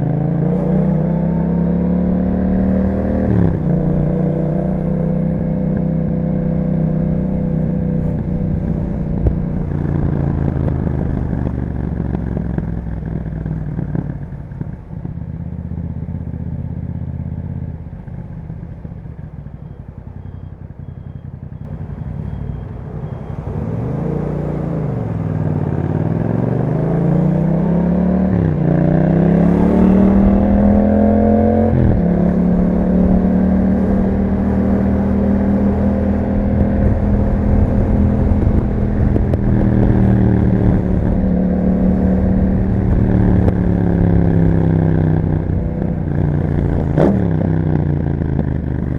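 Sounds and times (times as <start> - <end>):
motorcycle engine accelerating: 0.0 - 48.9.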